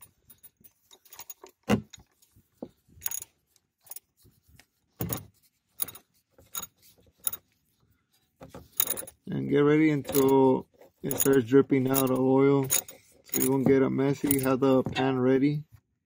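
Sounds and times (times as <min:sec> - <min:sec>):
ratchet clinking and knocking: 0:03.0 - 0:04.1, 0:05.0 - 0:07.4, 0:08.6 - 0:09.3, 0:09.9 - 0:15.1.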